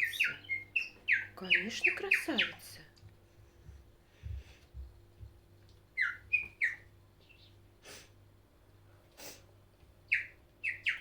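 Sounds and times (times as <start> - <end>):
soft breathy puffs: 3.2 - 4.9.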